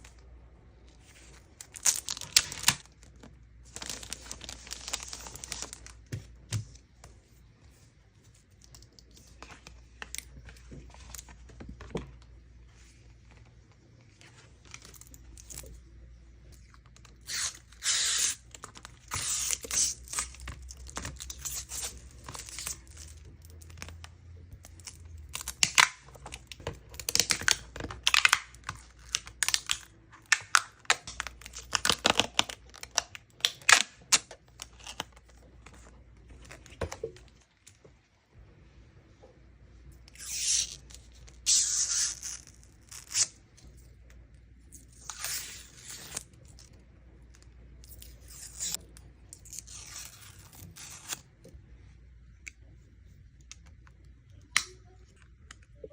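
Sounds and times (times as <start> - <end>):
packaging being torn and crinkled: 1.3 - 6.1, 16.6 - 36.7, 40.1 - 43.4, 44.8 - 46.8, 47.8 - 51.2.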